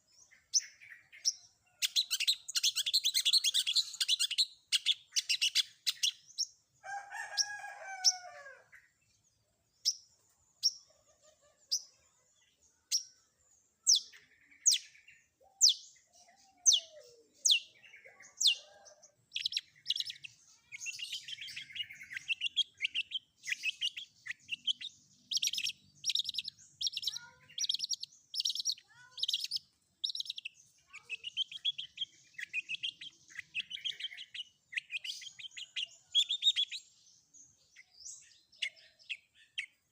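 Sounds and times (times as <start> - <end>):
shrike singing varied song: 0.0 - 39.9.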